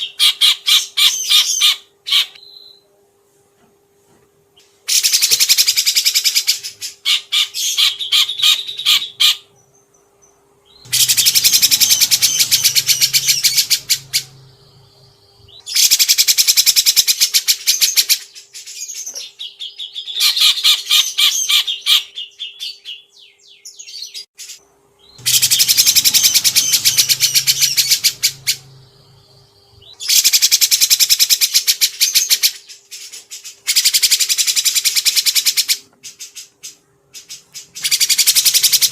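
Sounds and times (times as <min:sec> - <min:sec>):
faint steady hum: 0:00.0 - 0:38.9
songbird trilling: 0:10.7 - 0:17.0, 0:25.0 - 0:31.1.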